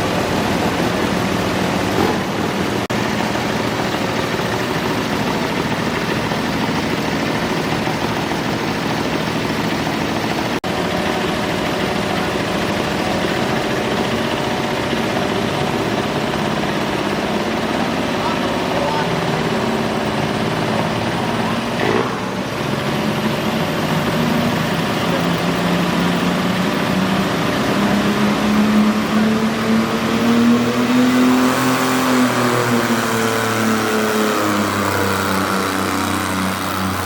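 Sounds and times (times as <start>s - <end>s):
tractor engine running hard: 0.0s - 37.0s.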